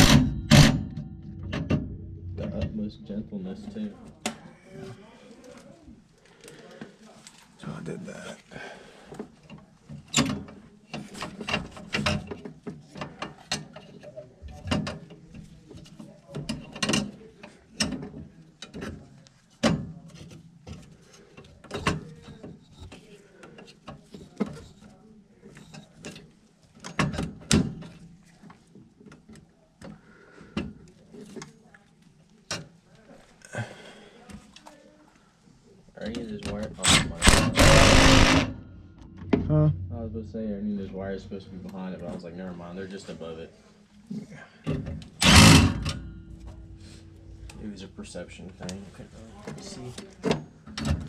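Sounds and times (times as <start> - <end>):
sharp metal strikes: 0.0 - 2.9, 36.9 - 41.2.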